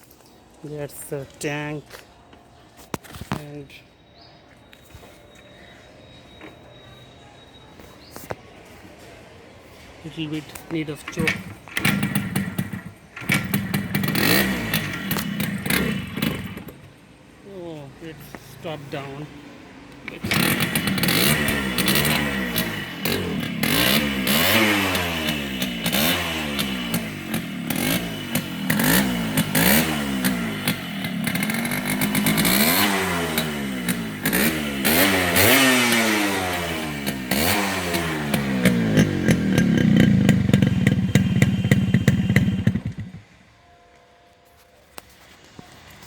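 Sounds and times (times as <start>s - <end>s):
motorcycle engine revving: 11.0s - 17.0s, 20.1s - 43.4s.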